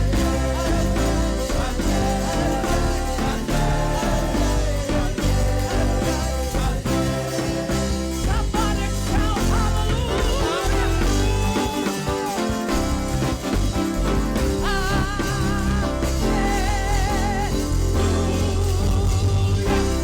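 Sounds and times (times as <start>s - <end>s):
steady drum beat: 0.0s - 20.0s
worship band music: 0.0s - 20.0s.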